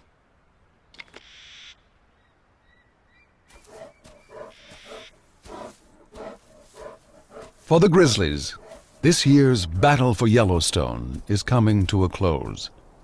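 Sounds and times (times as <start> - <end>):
bear breathing in huffs: 3.6 - 9.1
bear growling: 3.7 - 9.8.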